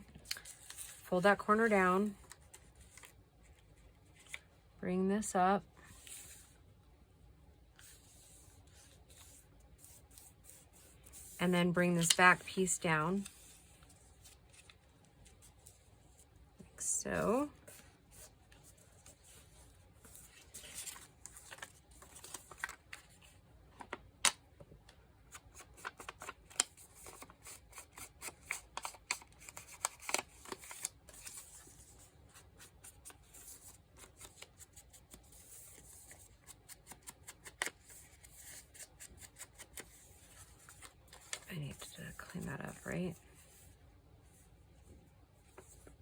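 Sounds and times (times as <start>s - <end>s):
paper crinkling and rustling: 2.1s - 4.4s, 13.2s - 15.9s, 17.6s - 24.4s, 25.3s - 43.7s.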